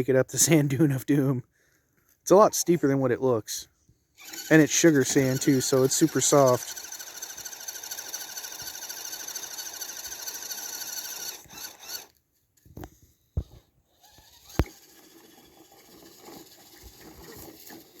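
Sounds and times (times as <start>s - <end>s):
electric motor whining: 4.2s - 12.1s, 14.0s - 15.0s.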